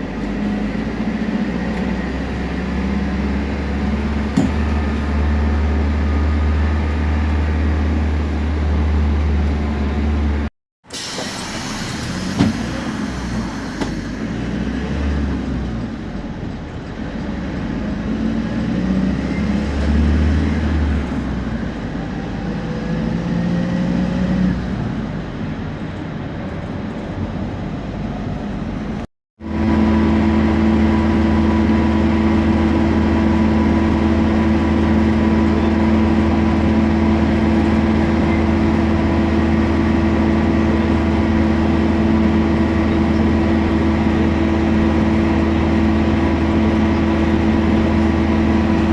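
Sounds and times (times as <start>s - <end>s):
diesel bus engine humming: 0.0s - 48.9s.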